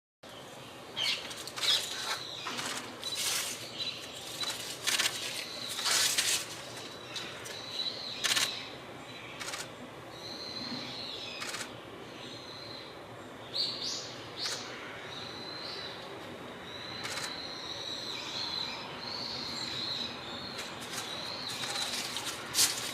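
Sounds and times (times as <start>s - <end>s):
magpies giving harsh calls: 1.0s - 7.6s, 14.4s - 15.4s, 20.6s - 22.9s.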